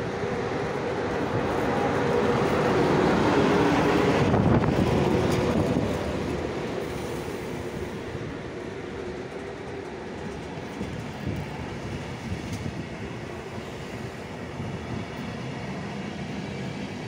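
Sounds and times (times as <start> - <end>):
electric locomotive hum: 0.0 - 17.0
train wheels rushing: 0.0 - 17.0.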